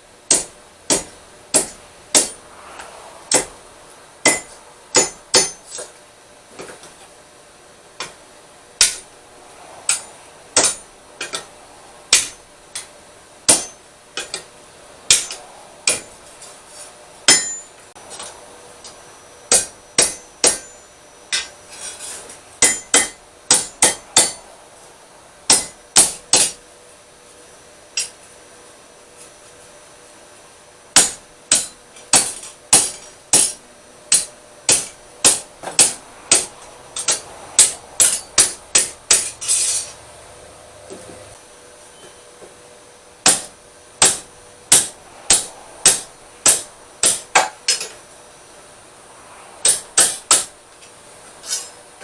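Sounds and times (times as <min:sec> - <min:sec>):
hammer striking steel on anvil: 0:00.3 - 0:03.6, 0:04.2 - 0:06.0, 0:08.8 - 0:09.2, 0:09.9 - 0:11.5, 0:12.1 - 0:12.9, 0:13.5 - 0:14.5, 0:15.1 - 0:24.5, 0:25.5 - 0:26.7, 0:28.0 - 0:28.2, 0:31.0 - 0:40.1, 0:43.2 - 0:48.0, 0:49.6 - 0:50.5.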